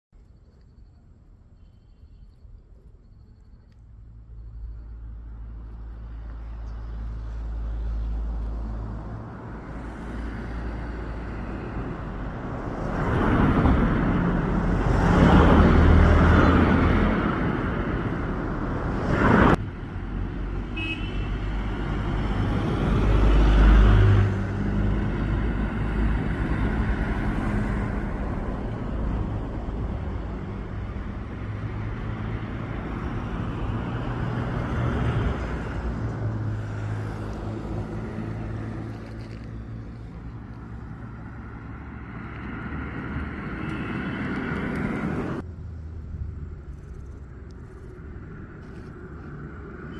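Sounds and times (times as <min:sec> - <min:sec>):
road traffic passing: 0:00.2 - 0:49.9.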